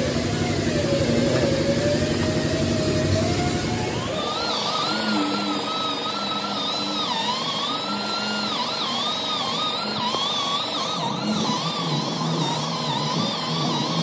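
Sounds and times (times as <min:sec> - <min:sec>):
power tool motor whining: 0:00.0 - 0:14.0.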